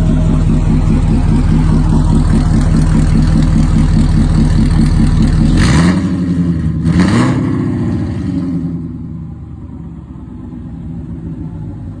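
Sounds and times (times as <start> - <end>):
car engine revving and idling: 0.0 - 12.0.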